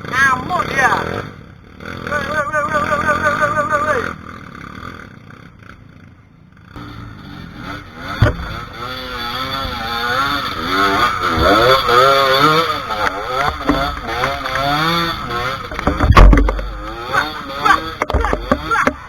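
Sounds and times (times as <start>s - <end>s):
motorcycle engine revving: 0.0s - 19.0s
sharp knock: 8.2s - 8.6s, 15.7s - 17.0s.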